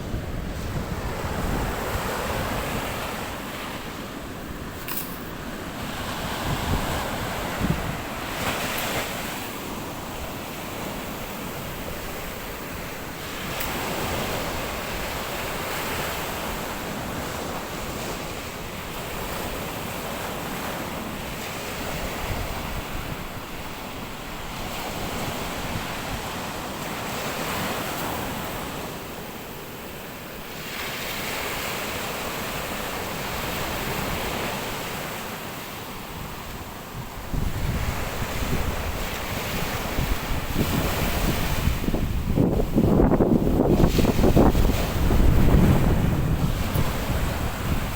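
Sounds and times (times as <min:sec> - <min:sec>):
wind buffeting microphone: 0:00.0 - 0:18.3, 0:36.2 - 0:47.9
waves breaking on beach: 0:00.0 - 0:47.9.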